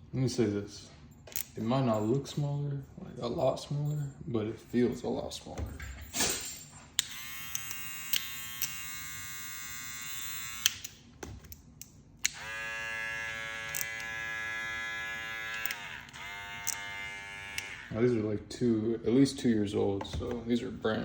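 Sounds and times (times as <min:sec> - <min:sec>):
hair clipper buzzing: 0:07.0 - 0:10.9, 0:12.2 - 0:18.1.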